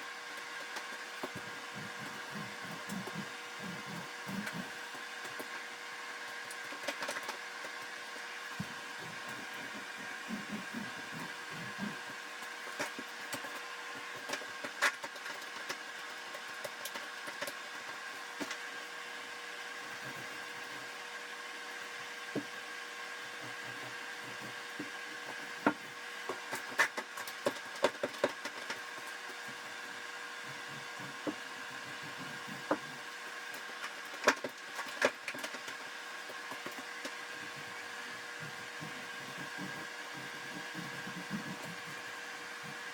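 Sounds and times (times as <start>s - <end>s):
mechanical hum: 0.0s - 42.9s.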